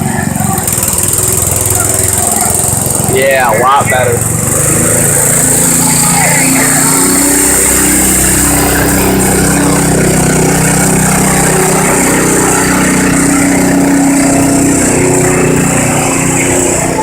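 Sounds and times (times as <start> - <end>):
tractor engine running under load: 0.0 - 17.0.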